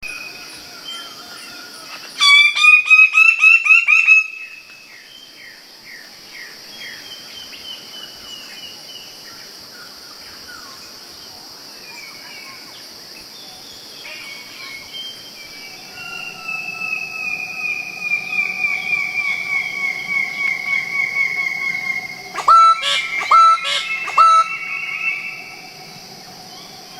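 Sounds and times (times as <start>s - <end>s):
steady high hiss: 0.1s - 26.9s
birds calling: 14.0s - 26.9s.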